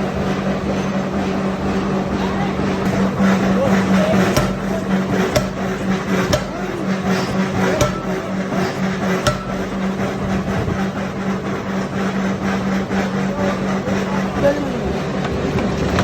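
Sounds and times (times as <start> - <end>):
machinery humming: 0.0 - 16.0
sharp knocks: 2.9 - 10.3.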